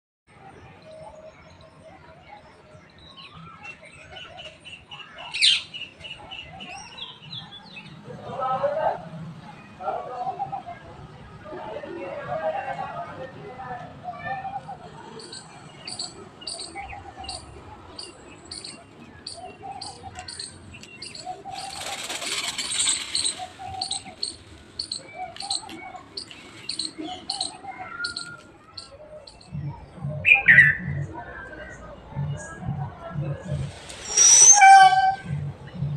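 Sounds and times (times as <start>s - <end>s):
birds chirping: 14.0s - 32.6s
shrill bird call: 34.0s - 35.3s.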